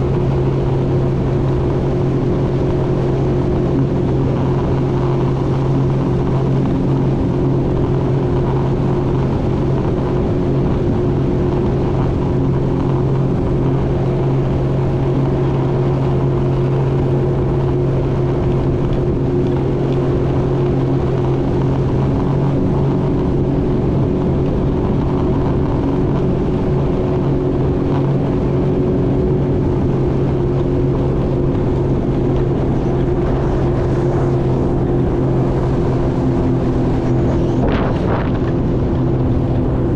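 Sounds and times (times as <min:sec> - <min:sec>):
jet ski engine running: 0:00.0 - 0:39.9
rushing noise: 0:19.1 - 0:39.9.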